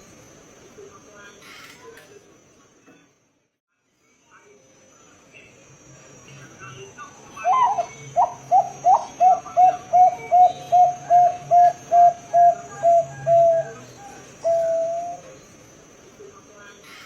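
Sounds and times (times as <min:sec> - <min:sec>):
dove cooing: 0:07.4 - 0:15.4.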